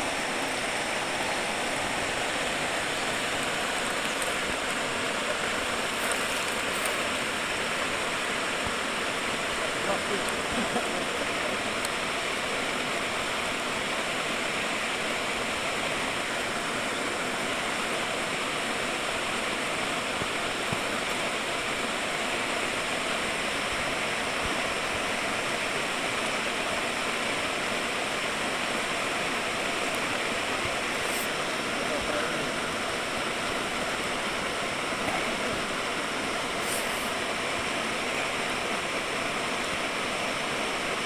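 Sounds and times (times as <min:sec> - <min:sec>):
river flowing: 0:00.0 - 0:41.0.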